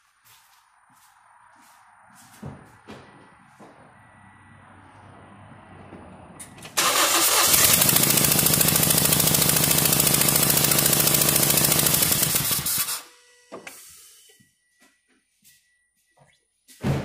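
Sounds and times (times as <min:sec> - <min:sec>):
engine cranking: 0:06.5 - 0:13.0
engine running with fast pulsing: 0:06.8 - 0:12.9.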